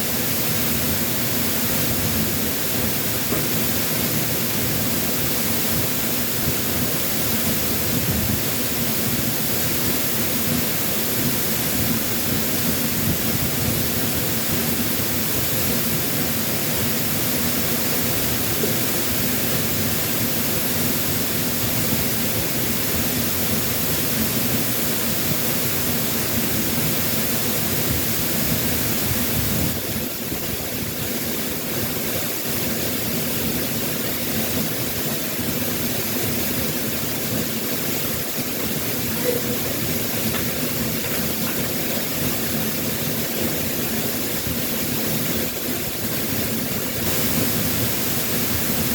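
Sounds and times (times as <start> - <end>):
waterfall rushing: 31.6 - 48.9.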